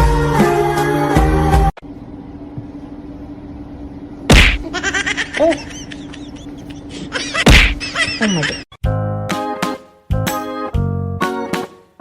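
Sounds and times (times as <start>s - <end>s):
sharp smacks: 4.3s - 4.6s, 7.5s - 7.8s.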